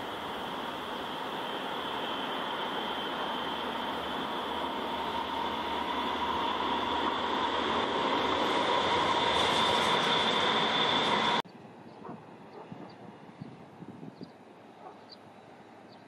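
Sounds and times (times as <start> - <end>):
train wheels rumbling on rail: 0.0 - 11.4
high-pitched train whine: 0.0 - 13.4
outdoor background: 0.0 - 16.0.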